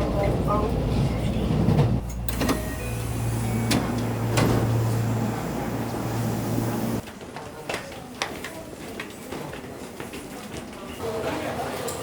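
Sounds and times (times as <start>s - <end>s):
low machine hum: 2.0s - 7.0s.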